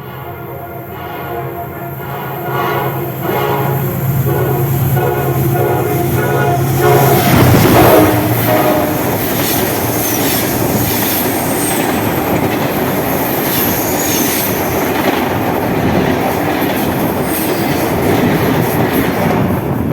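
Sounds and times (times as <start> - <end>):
train horn: 0.0 - 12.0
train rumbling over rails: 0.0 - 19.9
train wheel squeals: 2.9 - 19.2.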